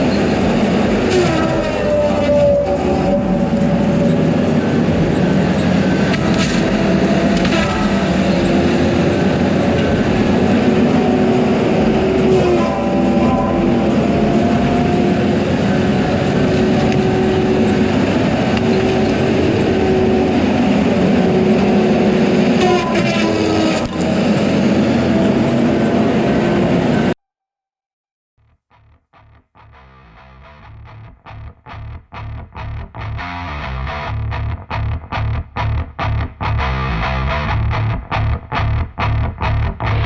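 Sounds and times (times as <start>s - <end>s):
diesel machinery running: 0.0s - 27.1s.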